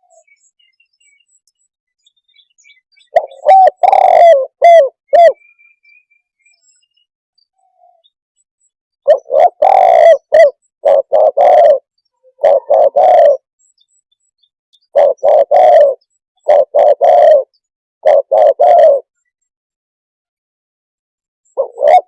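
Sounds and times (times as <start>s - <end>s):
dove cooing: 3.0s - 5.4s, 9.0s - 13.5s, 14.9s - 19.1s, 21.5s - 22.0s.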